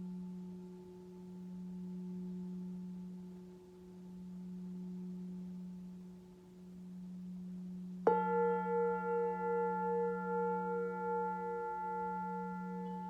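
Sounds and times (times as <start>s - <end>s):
low singing bowl tone: 0.0s - 13.0s
singing bowl struck and ringing: 8.0s - 13.0s.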